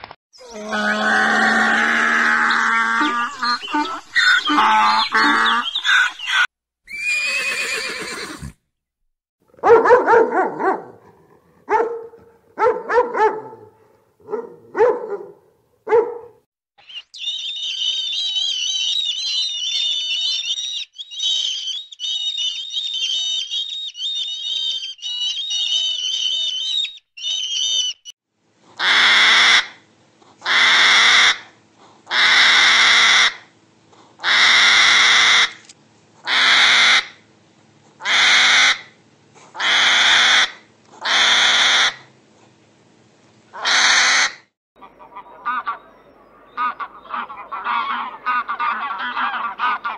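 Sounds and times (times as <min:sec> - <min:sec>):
donkey braying: 0:00.4 - 0:05.8
dog barking: 0:09.6 - 0:16.4
harsh rasping calls: 0:28.8 - 0:29.8, 0:30.4 - 0:33.5, 0:34.2 - 0:37.2, 0:38.0 - 0:42.1, 0:43.5 - 0:49.9.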